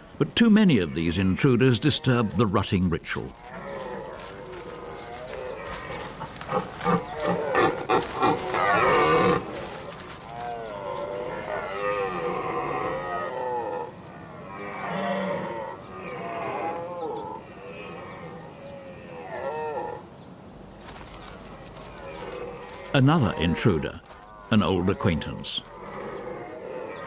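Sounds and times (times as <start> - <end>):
deer stags roaring: 3.4 - 13.9.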